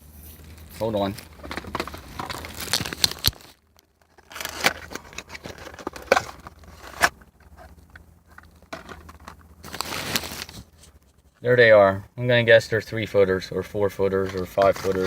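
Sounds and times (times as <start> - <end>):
plastic packaging crinkling and tearing: 0.4 - 7.1, 8.8 - 10.8, 14.2 - 15.0.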